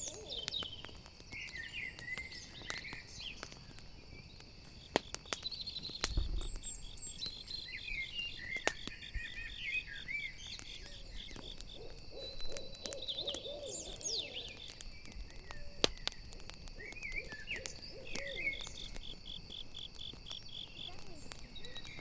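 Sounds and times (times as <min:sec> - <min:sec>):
owl hooting: 0:00.0 - 0:00.6, 0:10.9 - 0:14.6, 0:16.8 - 0:18.9
campfire crackling and popping: 0:00.0 - 0:22.0
crickets chirping: 0:00.0 - 0:22.0.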